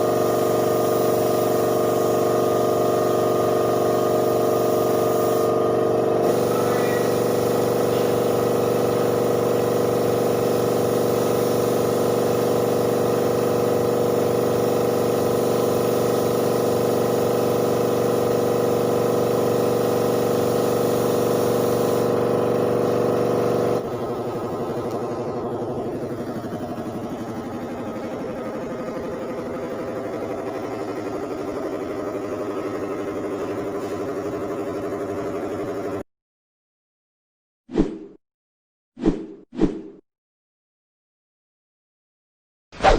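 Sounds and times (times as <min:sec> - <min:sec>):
air hissing: 0:00.0 - 0:23.8
air compressor humming: 0:00.0 - 0:36.0.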